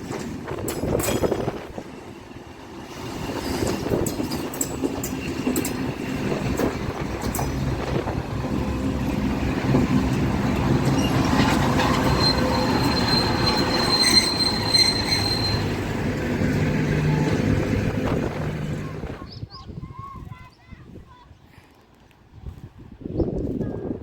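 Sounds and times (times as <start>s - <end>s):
wheels clicking over rail joints: 0.0s - 1.9s, 3.3s - 19.2s
freight train passing: 0.0s - 19.3s
high-pitched wheel squeal: 10.8s - 17.6s.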